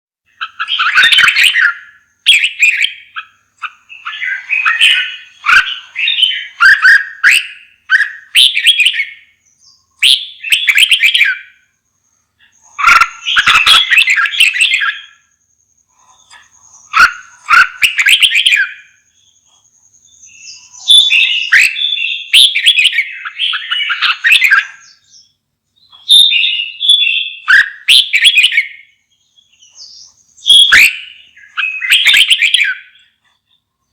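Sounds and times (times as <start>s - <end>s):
bird singing warbled phrases: 0.2s - 33.9s.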